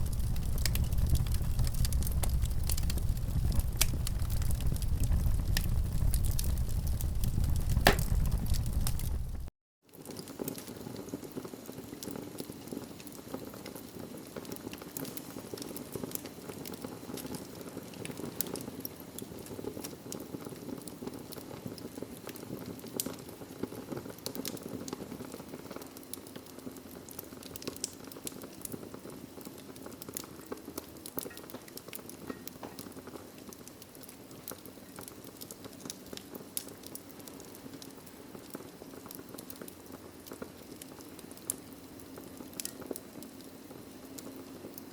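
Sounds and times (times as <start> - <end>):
fire flames rushing: 0.0 - 9.5
fire crackling and popping: 0.0 - 44.9.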